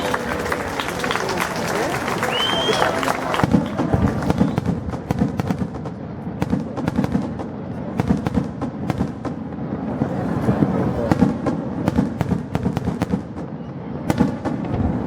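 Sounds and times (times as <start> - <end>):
fireworks crackling and popping: 0.0 - 15.0
deep firework bangs: 3.2 - 15.0.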